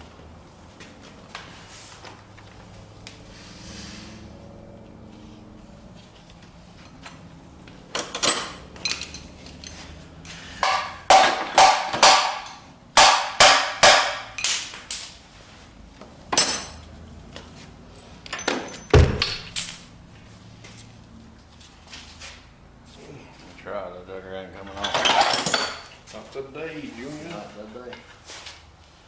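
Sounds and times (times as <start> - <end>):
metal knocks and clanks on engine: 7.9 - 14.7, 18.2 - 19.8
heavy deep thud: 19.0 - 19.6.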